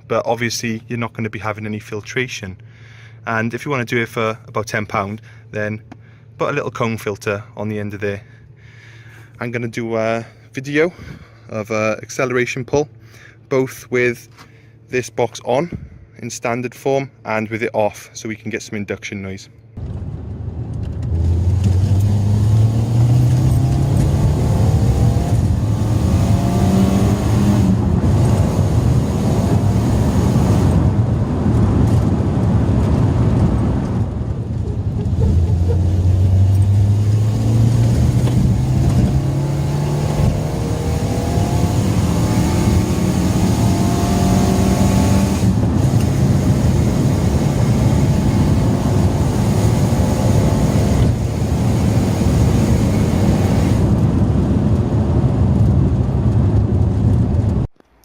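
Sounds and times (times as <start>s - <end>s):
car engine accelerating: 19.8s - 57.7s.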